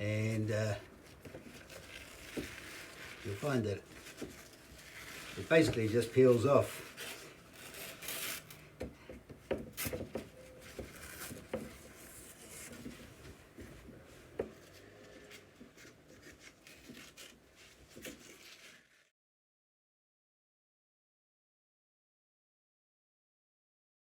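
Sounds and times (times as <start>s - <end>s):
paper scraped off wooden frame: 1.1s - 8.7s, 14.6s - 19.1s.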